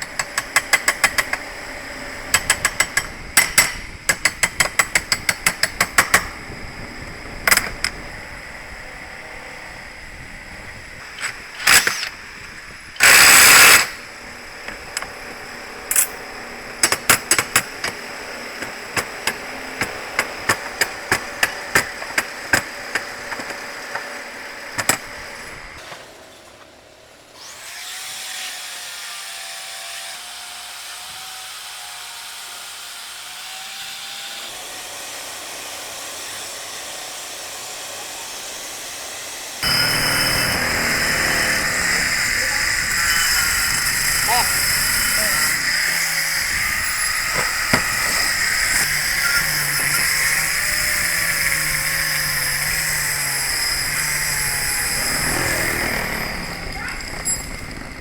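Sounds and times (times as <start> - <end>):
steady whirring: 0.0 - 25.8, 38.5 - 58.0
machine hum: 39.6 - 49.8.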